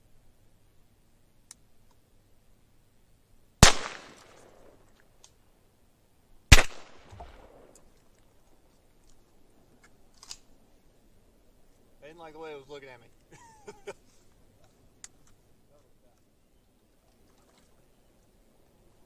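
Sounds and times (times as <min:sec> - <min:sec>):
shotgun shots: 0:03.6 - 0:04.8, 0:06.5 - 0:07.8.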